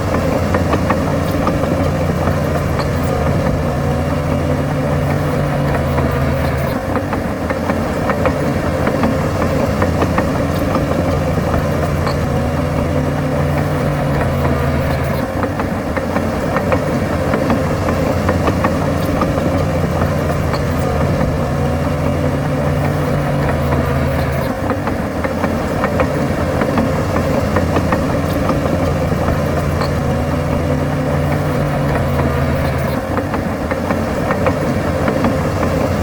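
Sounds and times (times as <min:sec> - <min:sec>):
heavy diesel engine running: 0:00.0 - 0:36.0.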